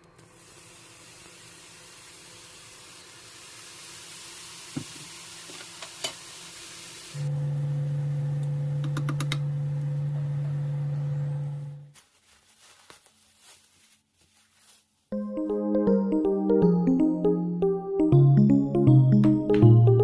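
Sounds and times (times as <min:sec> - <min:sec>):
food sizzling in a pan: 0:00.3 - 0:07.3.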